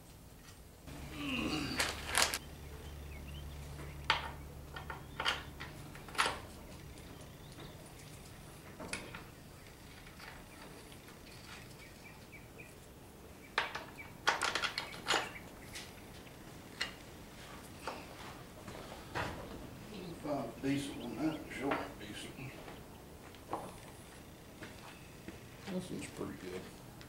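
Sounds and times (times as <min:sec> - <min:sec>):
low steady hum: 0:00.0 - 0:27.0
metal nuts and tools clinking: 0:13.6 - 0:15.9.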